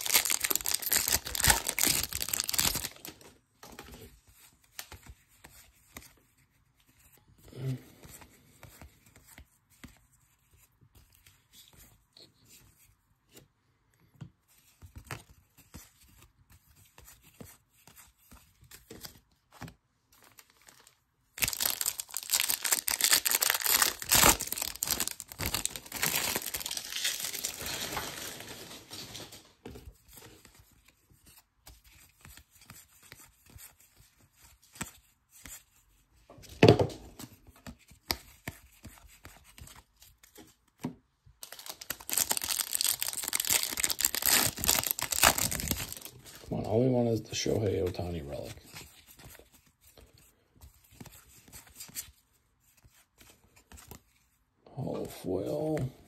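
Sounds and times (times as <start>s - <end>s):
card handling: 0.0s - 3.2s, 18.7s - 29.4s, 41.4s - 46.5s
wrapper crinkling and tearing: 0.0s - 3.3s, 20.4s - 29.5s, 41.4s - 46.6s.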